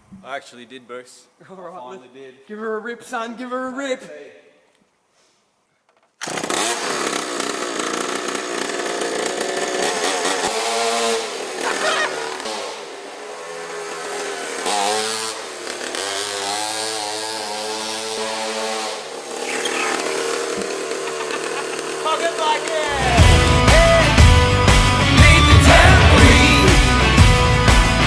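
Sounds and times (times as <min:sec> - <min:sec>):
small motorbike engine revving: 0:06.2 - 0:27.7.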